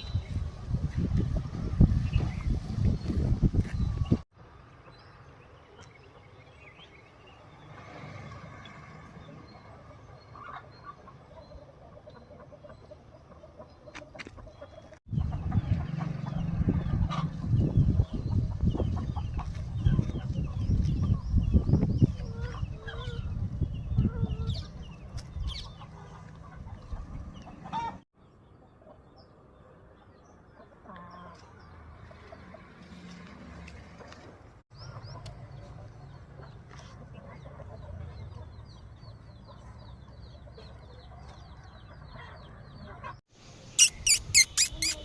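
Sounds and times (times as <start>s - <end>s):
chickens clucking and calling: 9.5s - 28.0s, 34.8s - 43.2s.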